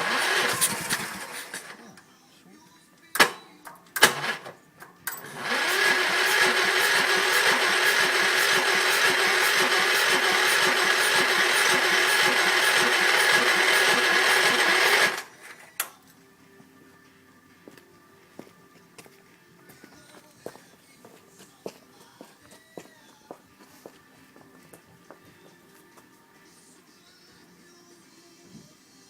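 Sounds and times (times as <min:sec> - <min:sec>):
electric starter cranking engine: 0:00.0 - 0:01.8, 0:04.0 - 0:15.9.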